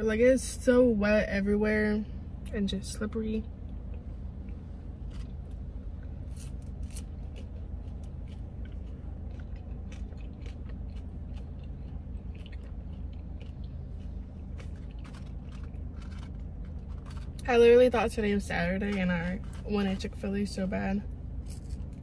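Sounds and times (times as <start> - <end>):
steady low hum: 0.0 - 22.0
person chewing food: 3.8 - 17.4
small crunchy clicks: 6.3 - 17.5.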